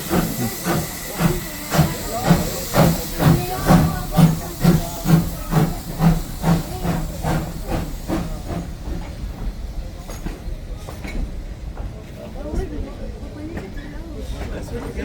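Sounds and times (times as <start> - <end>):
steam hissing: 0.0 - 11.7
steam locomotive chuffing: 0.0 - 15.0.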